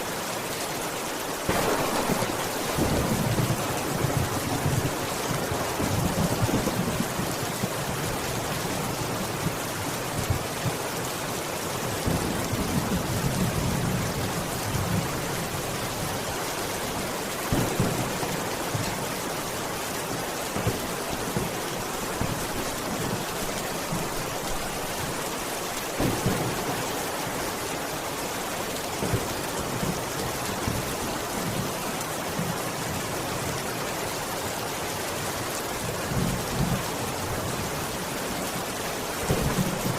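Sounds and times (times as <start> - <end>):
heavy rain pattering: 0.0 - 39.9
thunder rumbling: 1.5 - 7.6, 25.9 - 27.6.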